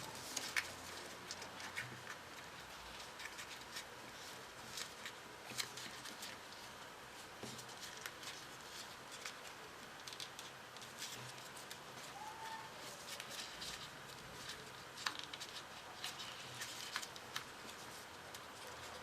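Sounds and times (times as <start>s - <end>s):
paper rustling and crinkling: 0.0s - 19.0s.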